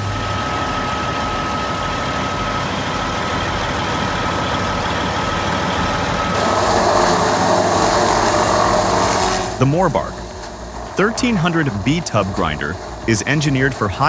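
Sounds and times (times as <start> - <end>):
heavy machine engine running: 0.0 - 14.0.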